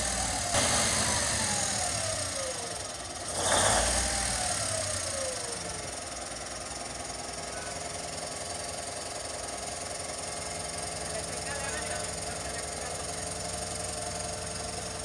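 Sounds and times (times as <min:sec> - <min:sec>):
diesel engine revving: 0:00.0 - 0:06.7, 0:10.4 - 0:15.0.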